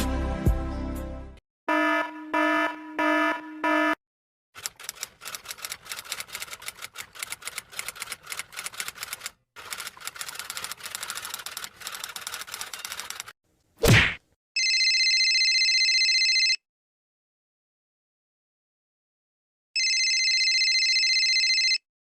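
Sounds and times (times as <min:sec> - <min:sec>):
fast keyboard typing: 0:04.6 - 0:13.3.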